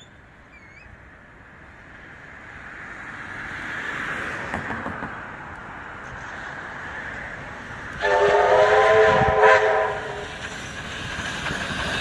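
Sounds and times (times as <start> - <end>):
bird chirping: 0.0 - 1.0
train approaching rushing noise: 0.0 - 12.0.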